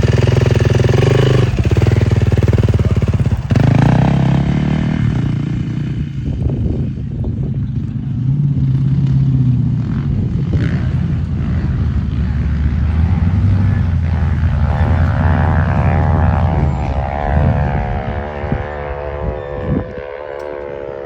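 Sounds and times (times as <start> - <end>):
dirt bike engine revving: 0.0 - 6.8, 8.3 - 21.0.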